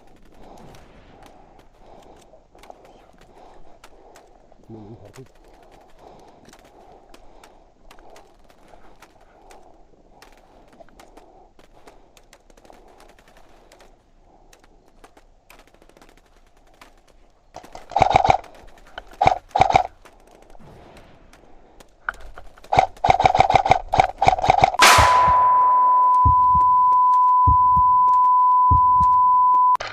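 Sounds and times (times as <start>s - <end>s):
faint clicks: 0.0s - 24.8s
airsoft gun full-auto bursts: 17.7s - 19.9s, 22.7s - 25.6s.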